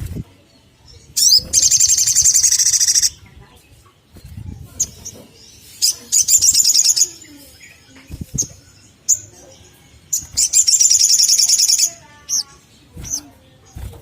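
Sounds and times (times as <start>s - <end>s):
bird trilling: 1.2s - 3.2s, 5.8s - 9.4s, 10.1s - 13.3s.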